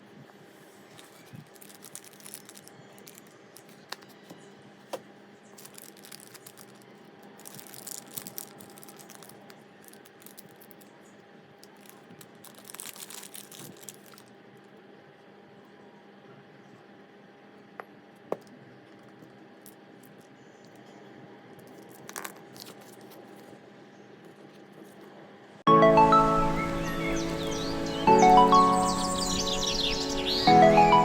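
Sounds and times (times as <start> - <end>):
packaging crinkling and rustling: 0.7 - 14.4, 21.6 - 23.6.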